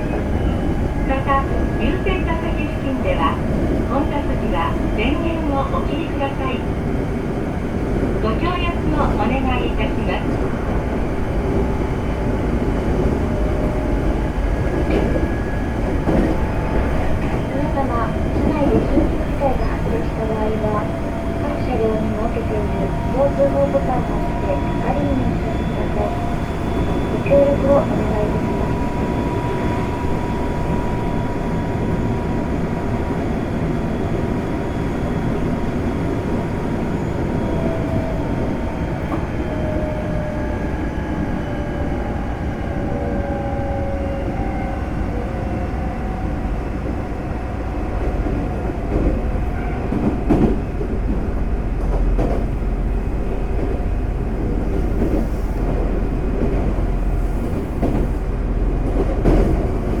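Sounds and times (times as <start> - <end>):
train wheels rumbling on rail: 0.0 - 60.0
rail joint clicks: 8.0 - 31.1, 39.0 - 39.4, 47.9 - 60.0.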